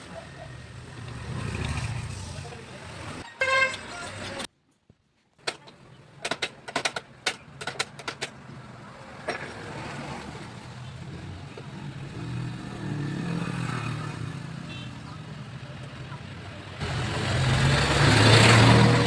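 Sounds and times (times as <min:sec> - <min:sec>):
sharp clicks and knocks: 0:05.4 - 0:08.6.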